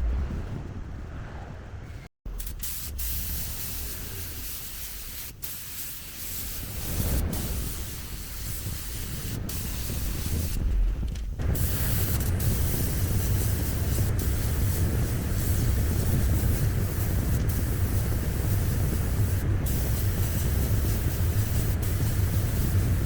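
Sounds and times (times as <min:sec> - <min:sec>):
low rumble: 0:00.0 - 0:04.7
spray gun hissing: 0:02.4 - 0:10.6, 0:11.4 - 0:23.0.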